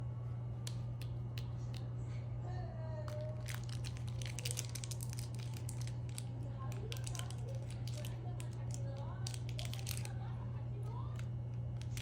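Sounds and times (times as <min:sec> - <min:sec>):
steady low hum: 0:00.0 - 0:12.0
plastic packaging crinkling: 0:03.1 - 0:10.3, 0:10.9 - 0:12.0.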